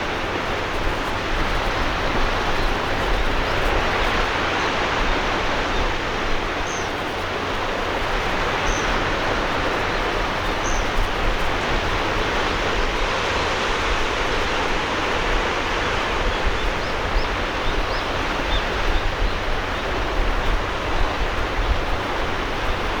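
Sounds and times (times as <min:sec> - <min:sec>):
sea surf washing on shore: 0:00.0 - 0:23.0.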